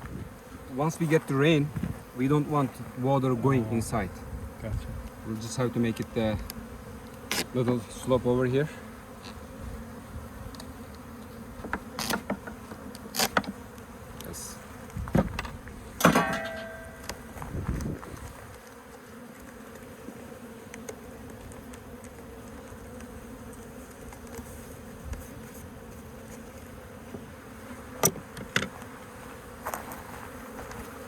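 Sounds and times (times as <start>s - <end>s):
bees buzzing: 0.0s - 31.0s
sharp knocks: 15.1s - 17.0s.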